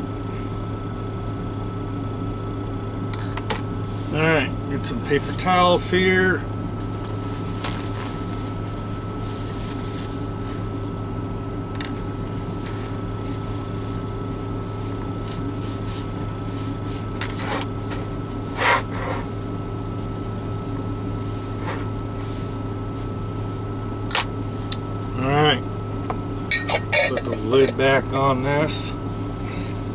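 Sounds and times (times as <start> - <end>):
climate system hum: 0.0 - 29.9
short rustles: 6.8 - 10.7.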